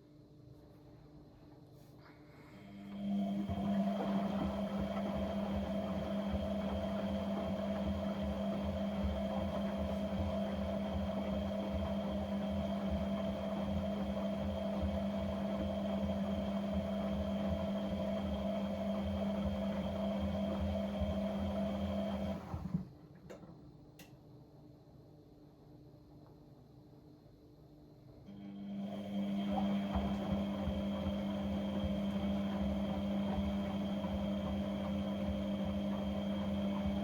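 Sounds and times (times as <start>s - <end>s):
appliance motor humming: 2.7s - 22.8s, 28.3s - 37.0s.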